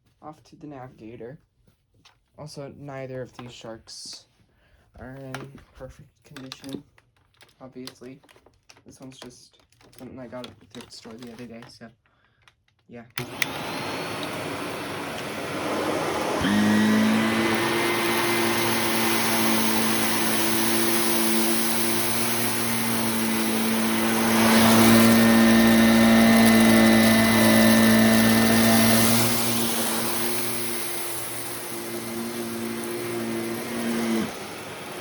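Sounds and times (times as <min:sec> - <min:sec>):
vacuum cleaner running: 0:13.2 - 0:35.0.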